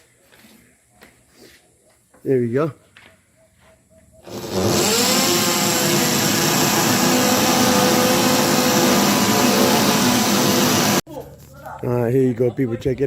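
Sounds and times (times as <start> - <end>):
power tool motor spinning: 4.2 - 11.0.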